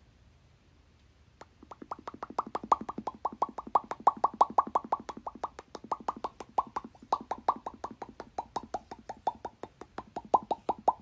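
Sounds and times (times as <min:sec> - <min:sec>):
falling bloop sounds: 0:01.6 - 0:09.5.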